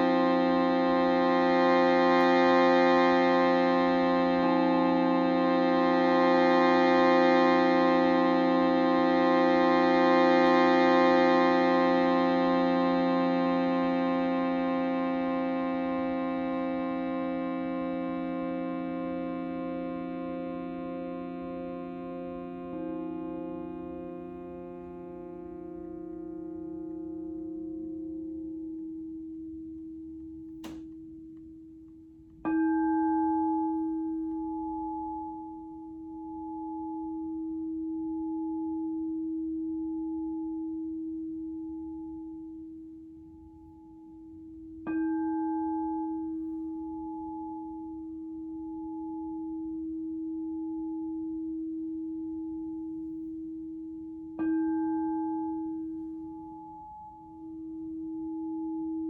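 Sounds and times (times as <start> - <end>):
shruti box drone: 0.0 - 29.3
light tap: 30.6 - 31.0
crystal singing bowl ringing: 32.5 - 59.0.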